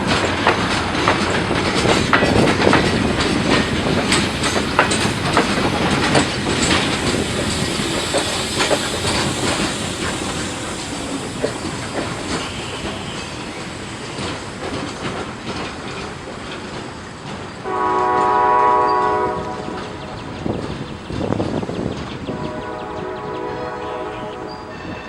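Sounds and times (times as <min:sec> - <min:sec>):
train wheels clacking over rails: 0:00.0 - 0:25.0
locomotive horn blast: 0:17.6 - 0:20.0, 0:22.3 - 0:25.0.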